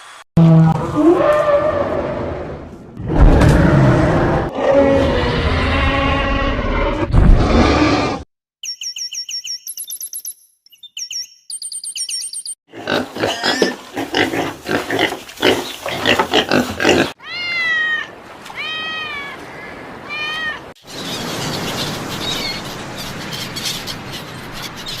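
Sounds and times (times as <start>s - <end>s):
high repeated chirps: 8.6s - 12.6s
outdoor animal chorus: 12.7s - 17.3s.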